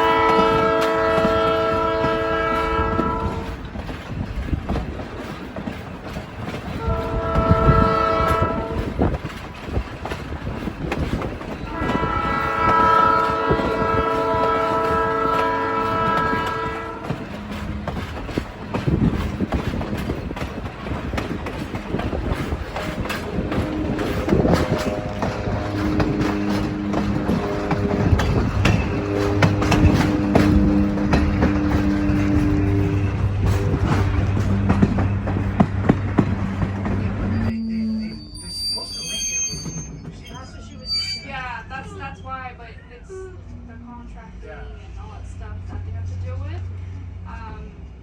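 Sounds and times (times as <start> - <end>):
locomotive horn blasts: 0.0 - 3.6, 6.8 - 8.9, 11.7 - 18.4, 22.7 - 38.3
wheels clattering over rails: 0.0 - 37.5
train rumbling: 0.0 - 48.0.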